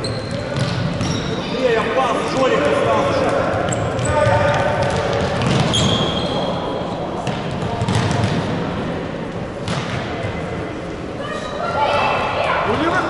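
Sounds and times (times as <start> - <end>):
noise of players and onlookers: 0.0 - 13.0
brief high squeak: 5.7 - 6.5.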